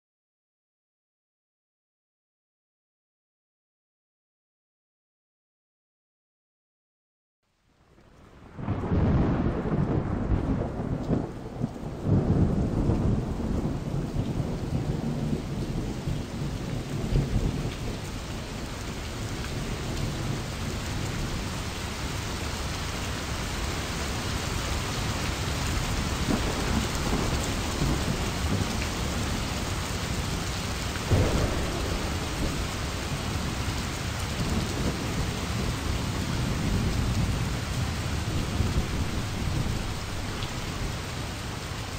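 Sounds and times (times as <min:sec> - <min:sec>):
heavy rain: 0:07.5 - 0:41.9
thunder rumbling: 0:08.4 - 0:21.5, 0:25.5 - 0:41.8.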